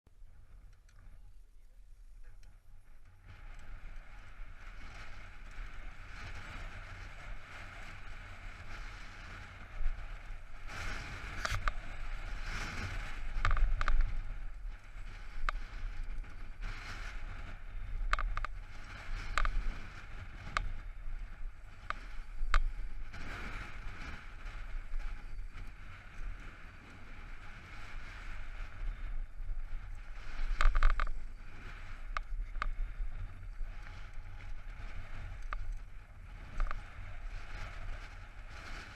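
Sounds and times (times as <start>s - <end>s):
wind on microphone: 0.2s - 38.9s.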